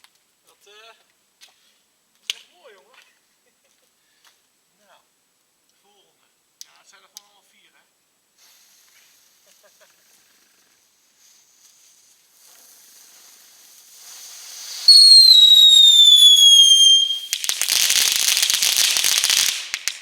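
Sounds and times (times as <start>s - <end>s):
firework crackling: 8.4s - 20.0s
firework fuse hissing: 8.4s - 20.0s
firework whistle falling in pitch: 14.8s - 17.4s.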